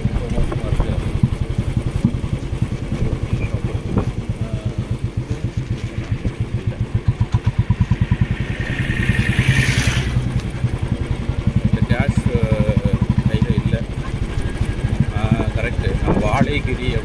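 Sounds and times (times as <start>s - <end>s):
motorcycle engine running: 0.0s - 17.0s
hissing noise: 7.2s - 10.5s.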